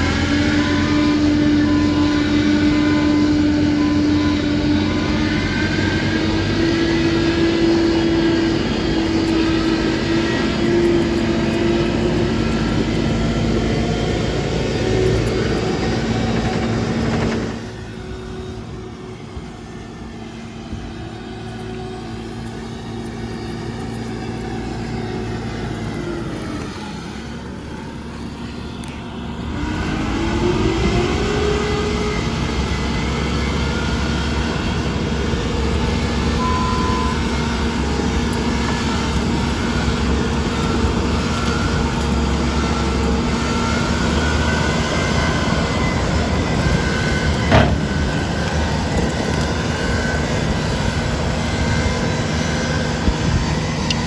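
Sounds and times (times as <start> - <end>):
diesel engine revving: 0.0 - 54.0
sharp knock: 47.5 - 48.0.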